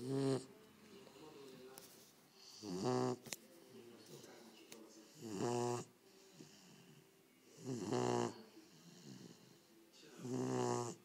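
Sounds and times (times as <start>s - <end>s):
puppy snoring: 0.0s - 0.5s, 2.3s - 3.3s, 5.0s - 11.0s
quiet breathing: 0.0s - 11.0s.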